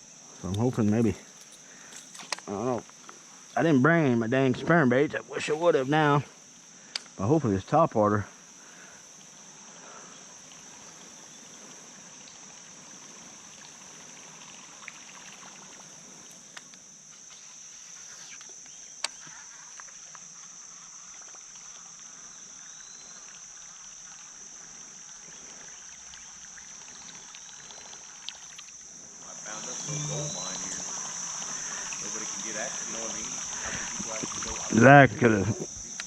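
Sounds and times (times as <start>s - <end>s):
faint water sounds: 0.0s - 36.0s
insect chorus buzzing: 0.0s - 36.0s
faint ticks: 0.4s - 3.6s, 6.8s - 7.2s, 11.6s - 12.7s, 14.4s - 17.5s, 18.2s - 22.2s, 23.1s - 29.0s.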